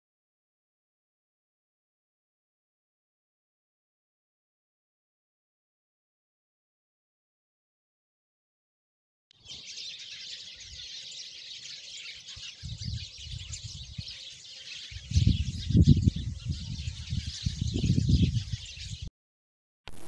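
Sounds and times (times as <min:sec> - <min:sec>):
birds chirping chorus: 0:09.4 - 0:19.1.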